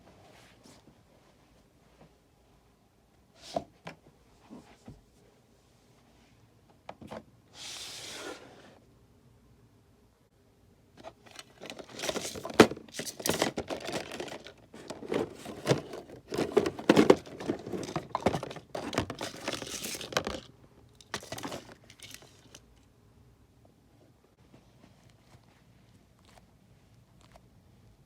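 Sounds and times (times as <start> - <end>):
hands crinkling plastic: 11.1 - 22.8.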